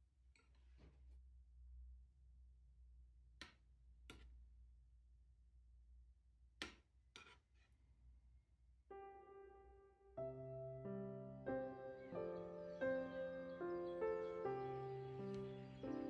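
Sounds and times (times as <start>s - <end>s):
soft piano music: 8.9s - 16.0s.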